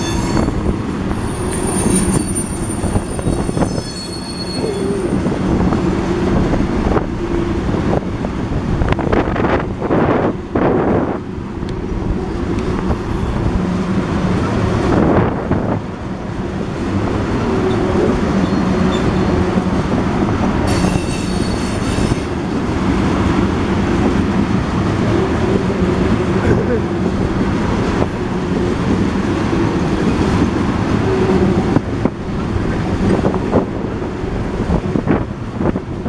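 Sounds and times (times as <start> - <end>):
high-pitched wheel squeal: 0.0 - 5.2, 20.7 - 22.3
train wheels rumbling on rails: 0.0 - 36.0.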